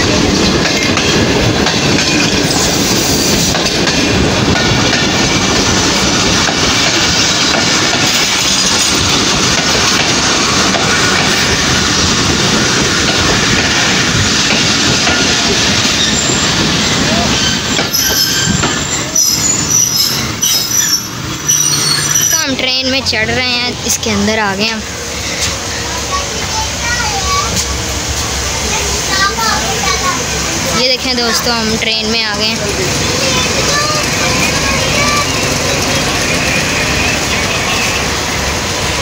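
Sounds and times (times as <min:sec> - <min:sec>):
train wheels clattering on track: 0:00.0 - 0:39.0
high-pitched wheel squeal: 0:17.1 - 0:22.6.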